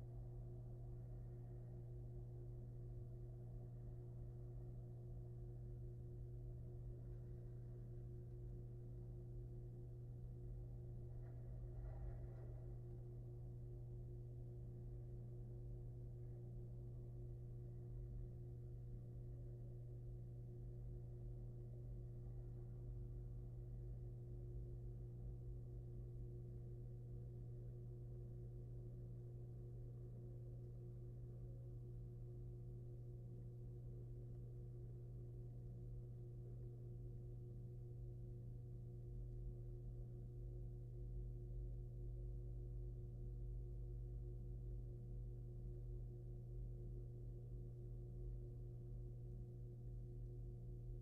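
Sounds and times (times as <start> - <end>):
low electrical hum: 0.0 - 51.0.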